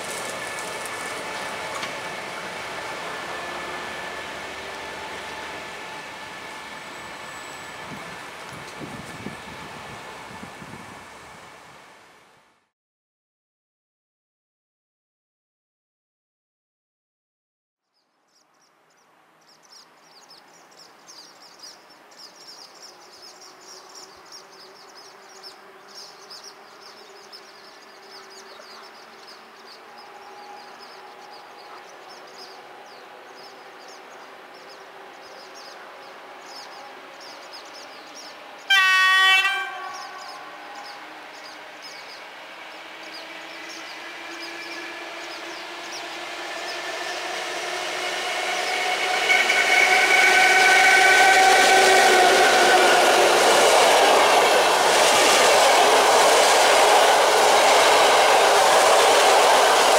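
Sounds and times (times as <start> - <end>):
approaching train noise: 0.0 - 12.7, 19.2 - 59.9
birds chirping: 18.3 - 59.9
locomotive horn blast: 38.6 - 41.2, 46.2 - 54.6.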